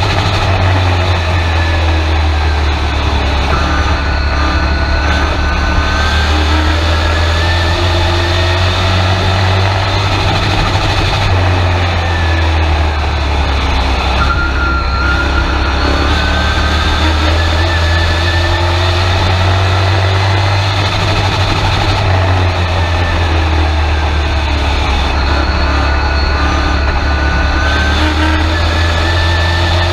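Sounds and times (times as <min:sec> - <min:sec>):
truck engine revving: 0:00.0 - 0:29.9.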